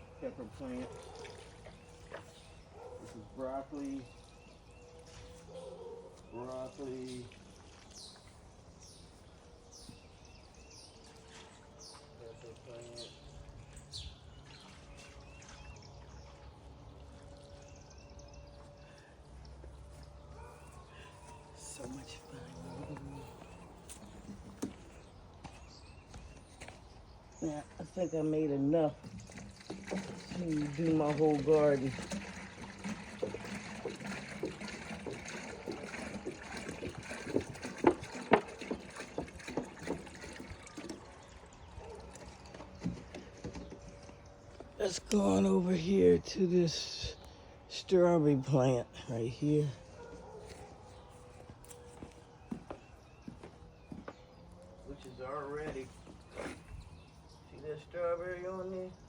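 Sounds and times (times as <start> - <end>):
bird chirping: 0.0 - 31.1, 42.8 - 59.0
small splashes and taps: 0.6 - 4.4, 6.1 - 8.5, 23.8 - 26.9, 28.9 - 45.2
liquid trickling onto plants: 6.1 - 25.4, 27.4 - 49.0
liquid pouring onto soil: 29.0 - 43.0.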